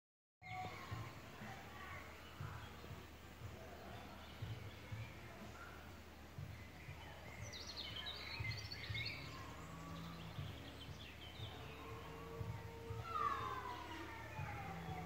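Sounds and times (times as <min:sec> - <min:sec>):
birds twittering and chirping: 0:00.4 - 0:15.0.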